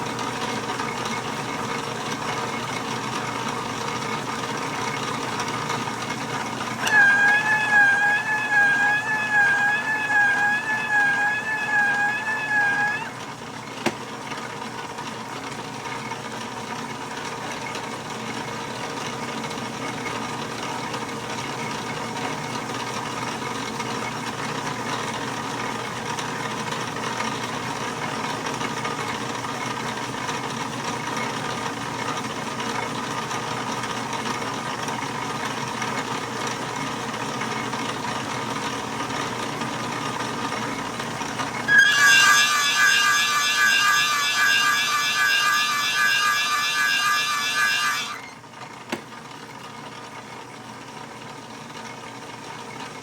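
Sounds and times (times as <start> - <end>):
lathe humming: 6.6 - 13.4, 41.6 - 48.4
high-pitched wavering squeal: 6.8 - 13.3, 41.7 - 48.4.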